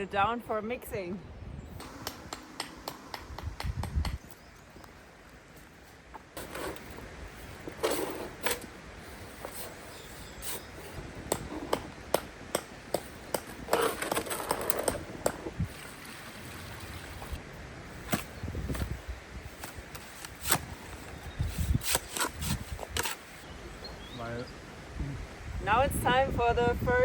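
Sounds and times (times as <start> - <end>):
scraping: 6.1 - 17.4.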